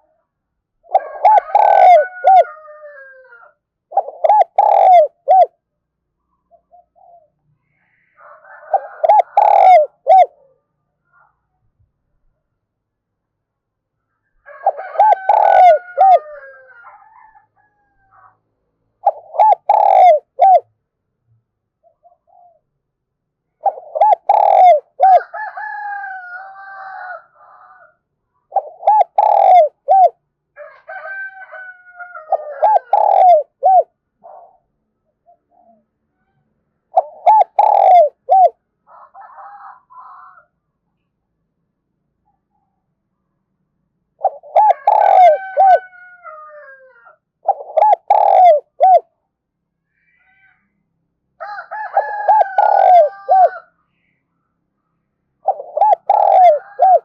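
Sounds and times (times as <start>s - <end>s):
dove cooing: 0.8s - 5.5s, 6.5s - 7.3s, 8.0s - 10.5s, 14.5s - 17.3s, 19.0s - 20.7s, 21.9s - 22.6s, 23.6s - 25.5s, 28.5s - 30.2s, 32.2s - 34.6s, 36.9s - 38.6s, 44.2s - 45.9s, 46.7s - 49.1s, 51.9s - 53.6s, 55.4s - 57.0s.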